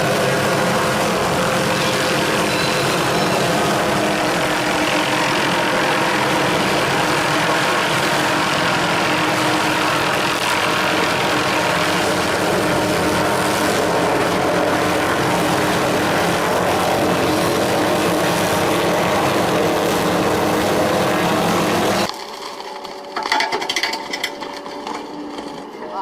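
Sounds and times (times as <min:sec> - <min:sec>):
heavy machine engine running: 0:00.0 - 0:23.2.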